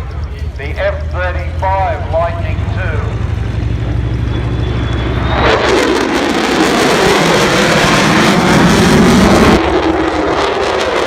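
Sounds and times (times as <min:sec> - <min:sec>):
jet flying past: 0:00.1 - 0:11.0.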